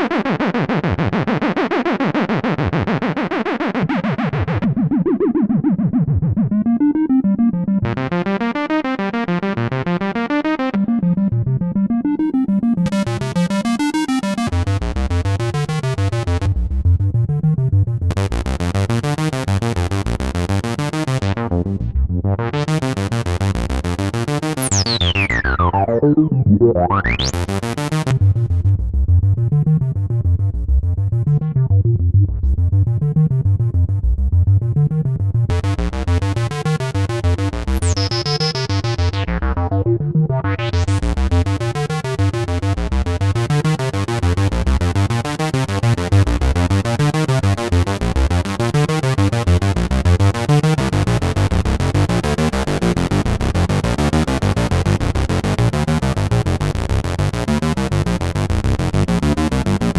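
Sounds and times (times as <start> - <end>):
synthesizer bass pulse: 12.2 - 59.9
synthesizer chords: 18.1 - 28.7, 33.2 - 59.9.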